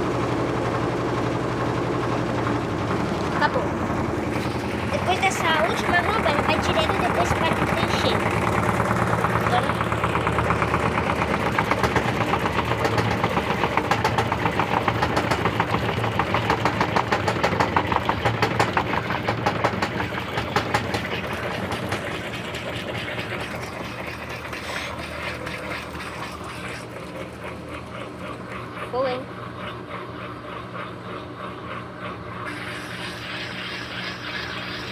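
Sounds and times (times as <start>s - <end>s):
washing machine motor hum: 0.0s - 34.9s
washing machine suspension knocking: 1.6s - 25.8s.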